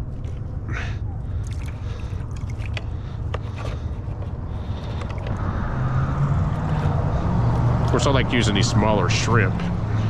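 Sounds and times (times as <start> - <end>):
road traffic rumbling: 0.0 - 10.0
vehicle passing: 3.7 - 10.0.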